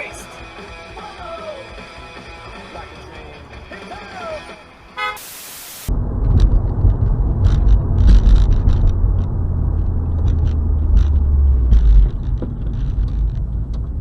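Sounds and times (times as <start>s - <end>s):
static-like hiss: 5.0s - 5.9s
car road and wind noise: 5.8s - 14.0s.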